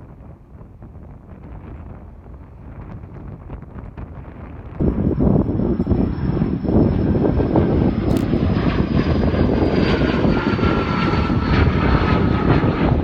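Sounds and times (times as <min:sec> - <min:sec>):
jet engines roaring at takeoff: 0:00.0 - 0:13.0.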